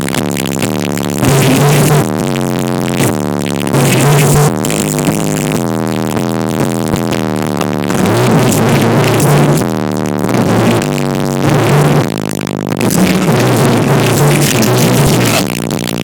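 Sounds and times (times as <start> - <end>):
electronic dance music with pounding bass: 0.0 - 16.0.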